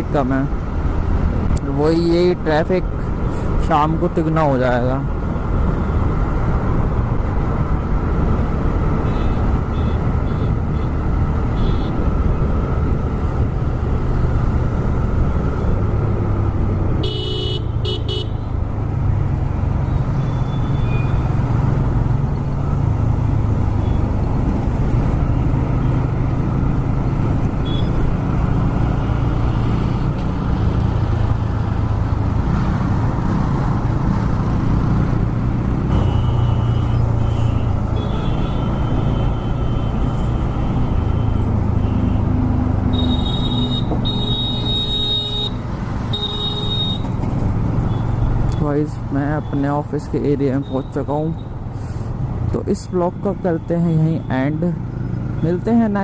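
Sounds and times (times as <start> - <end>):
vehicle horn toot: 17.0 - 18.3, 36.0 - 40.0, 42.9 - 47.1.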